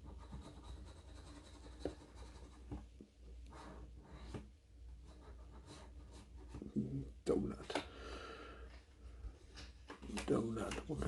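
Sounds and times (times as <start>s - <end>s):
scratch card being scraped: 0.0s - 2.8s.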